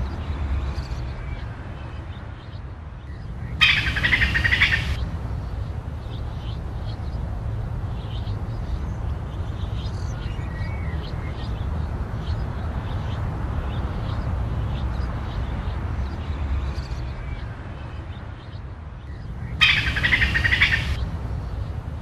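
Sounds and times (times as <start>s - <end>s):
wild birds chirping: 0.0s - 22.0s
steady low rumble: 19.0s - 22.0s.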